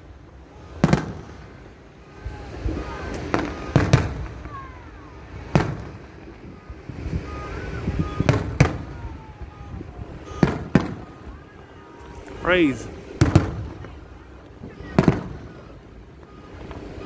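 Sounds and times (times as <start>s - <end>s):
firework shells bursting: 2.6s - 4.6s, 5.4s - 6.6s, 8.1s - 11.4s, 12.0s - 17.0s.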